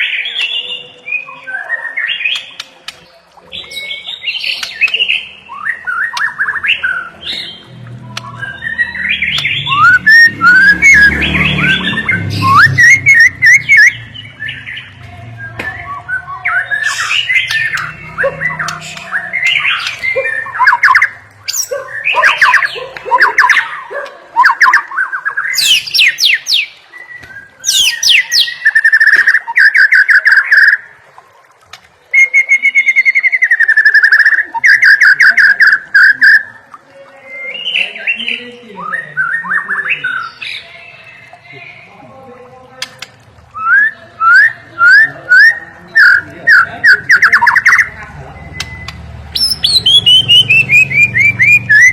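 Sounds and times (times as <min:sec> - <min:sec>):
bird singing whistled phrases: 0:03.5 - 0:23.8, 0:24.4 - 0:30.9, 0:32.1 - 0:36.6, 0:43.5 - 0:51.9
rapid bird trills: 0:15.8 - 0:30.9, 0:44.8 - 0:51.9.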